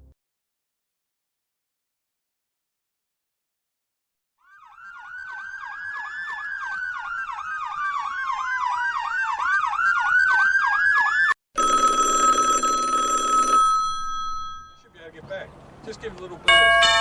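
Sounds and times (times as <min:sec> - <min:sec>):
emergency siren yelp and wail: 0:04.4 - 0:11.4
loud bell-like ringing: 0:13.3 - 0:14.9, 0:16.5 - 0:17.0.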